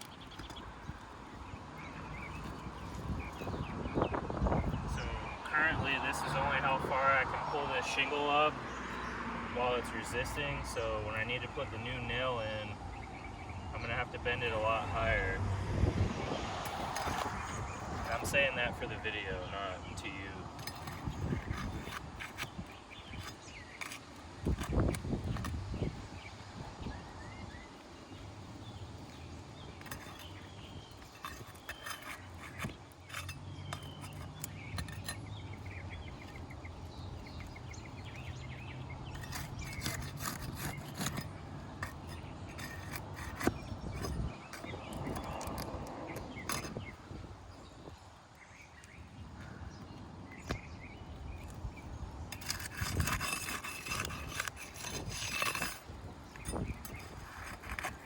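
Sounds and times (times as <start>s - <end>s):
scraping and rustling: 0.0s - 3.8s, 16.4s - 25.9s, 28.5s - 47.2s, 52.3s - 58.0s
birds chirping: 0.0s - 58.0s
clicks and knocks on roof shingles: 29.8s - 35.2s.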